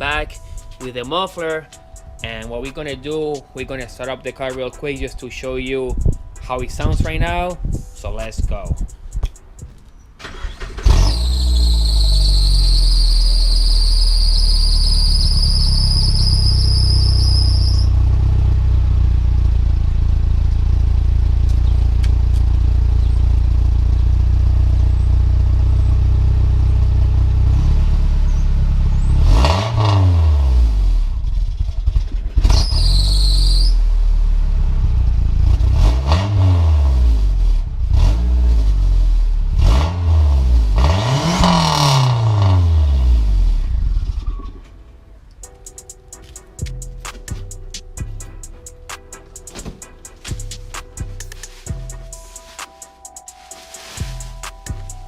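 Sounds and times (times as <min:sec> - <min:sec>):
car engine starting and idling: 0:08.8 - 0:32.8
high squeal: 0:10.2 - 0:18.0, 0:32.5 - 0:33.8, 0:44.0 - 0:44.8
engine revving: 0:10.2 - 0:21.5, 0:25.8 - 0:44.3.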